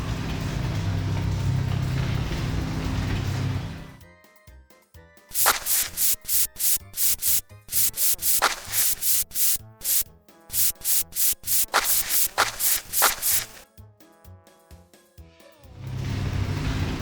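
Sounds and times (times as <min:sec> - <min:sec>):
brush swishing back and forth: 0:05.3 - 0:13.6.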